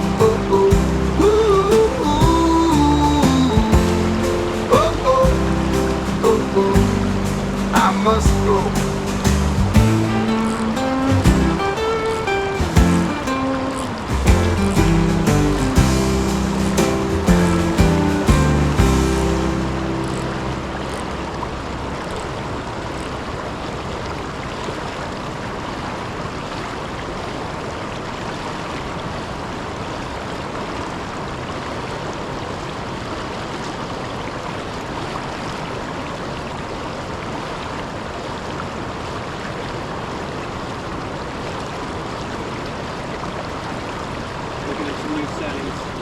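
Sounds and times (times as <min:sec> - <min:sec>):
water pouring over a waterfall: 0:19.6 - 0:46.0.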